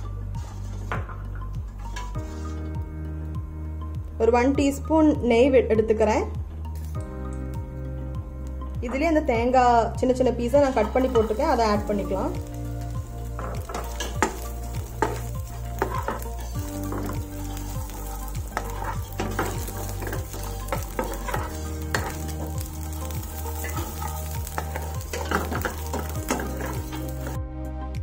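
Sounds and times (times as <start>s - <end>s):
spatula scraping a pan: 0.4s - 1.0s, 1.8s - 2.8s, 13.0s - 27.4s
food sizzling in a pan: 10.7s - 27.4s.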